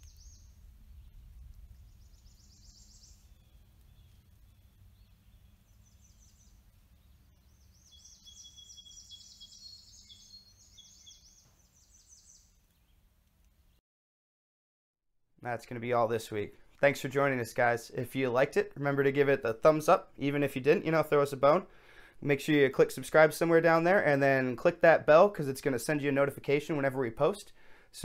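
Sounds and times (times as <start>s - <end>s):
songbirds chirping: 0.0s - 13.8s
thin bird whistles: 7.8s - 12.4s.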